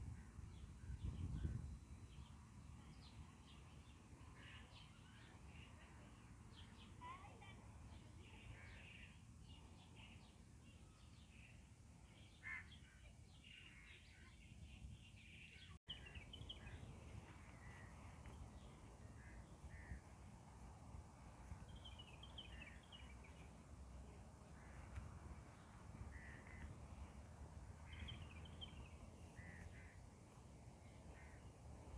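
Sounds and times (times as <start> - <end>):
birds chirping faintly: 0.2 - 31.9.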